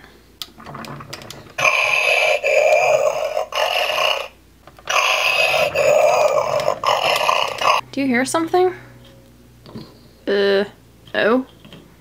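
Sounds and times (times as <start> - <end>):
toy electronic monster sound: 1.6 - 7.8.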